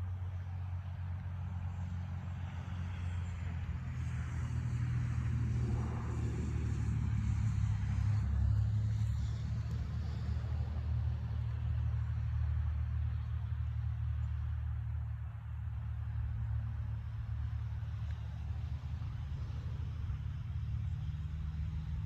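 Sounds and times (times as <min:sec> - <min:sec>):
car passing by: 0:00.0 - 0:22.0
steady low rumble: 0:05.1 - 0:22.0.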